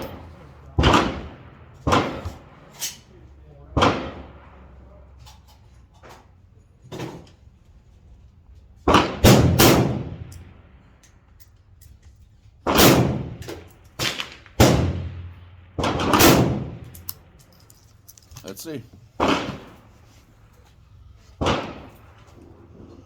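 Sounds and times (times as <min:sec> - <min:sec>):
rifle gunshots: 0:00.0 - 0:02.6, 0:03.8 - 0:04.5, 0:08.8 - 0:10.3, 0:12.6 - 0:17.1, 0:19.2 - 0:19.9, 0:21.4 - 0:22.1
distant gunshots: 0:00.8 - 0:02.6, 0:03.8 - 0:04.6, 0:08.9 - 0:10.3, 0:12.7 - 0:16.9, 0:19.2 - 0:19.9, 0:21.4 - 0:22.0.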